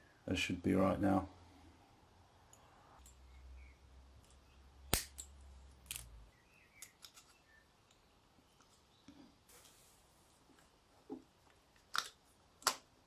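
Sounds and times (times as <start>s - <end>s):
metal parts and tools clicking: 4.2s - 6.2s, 6.8s - 8.0s.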